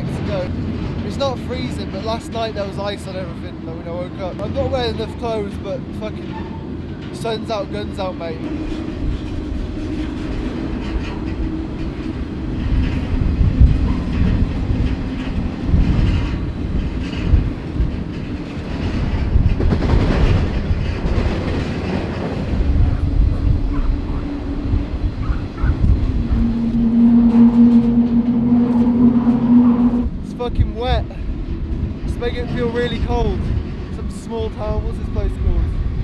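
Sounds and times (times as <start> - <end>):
clickety-clack over rail joints: 0.0 - 36.0
train wheels rumbling: 0.0 - 36.0
steady low tone: 22.5 - 32.2.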